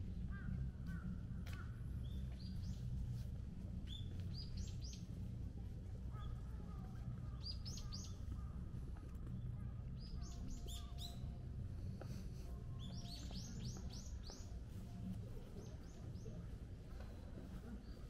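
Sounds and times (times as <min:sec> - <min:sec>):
low steady background rumble: 0:00.0 - 0:18.0
small birds chirping: 0:03.8 - 0:05.2, 0:06.1 - 0:11.4, 0:12.5 - 0:18.0.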